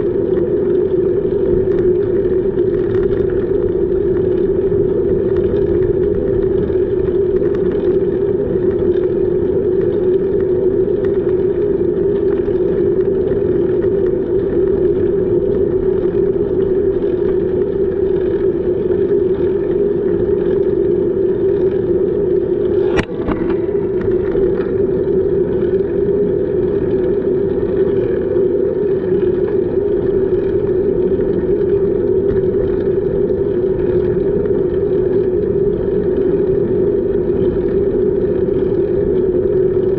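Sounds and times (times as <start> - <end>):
bicycle rolling noise: 0.0 - 39.9
wind on microphone: 0.0 - 39.9.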